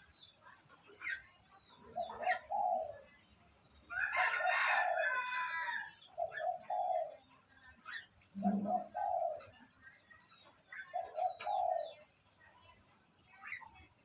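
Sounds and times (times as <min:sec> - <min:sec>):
small birds chirping: 0:00.0 - 0:14.0
dove cooing: 0:01.1 - 0:03.2, 0:04.2 - 0:09.8, 0:10.6 - 0:12.2
rooster crowing: 0:03.9 - 0:05.9.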